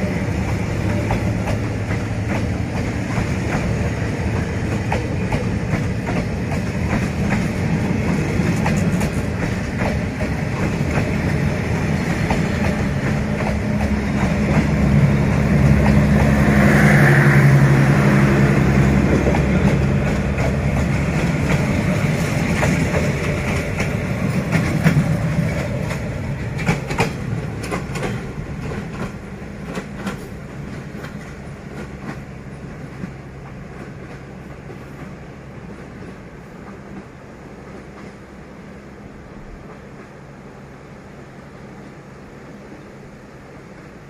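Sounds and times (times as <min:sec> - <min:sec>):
locomotive engine running loud: 0:00.0 - 0:29.5
train wheels clicking on rail joints: 0:00.0 - 0:40.4.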